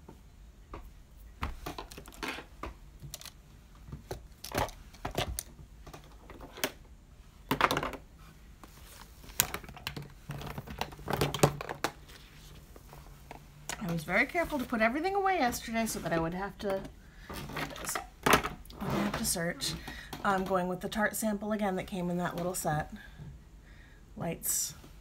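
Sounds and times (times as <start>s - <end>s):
plastic containers clicking and clattering: 7.5s - 8.0s, 9.3s - 12.1s, 16.7s - 20.5s.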